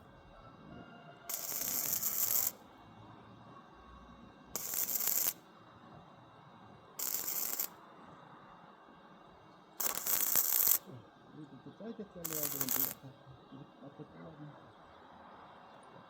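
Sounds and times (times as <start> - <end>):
arc welder crackling hiss: 1.3 - 2.6, 4.6 - 5.4, 7.0 - 7.8, 9.8 - 10.9, 12.2 - 13.0.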